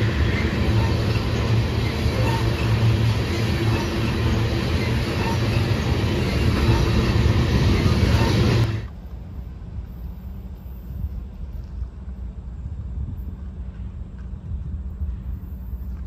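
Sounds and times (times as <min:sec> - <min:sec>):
train wheels rumbling on rails: 0:00.0 - 0:16.0
wind rumble on microphone: 0:09.0 - 0:16.0.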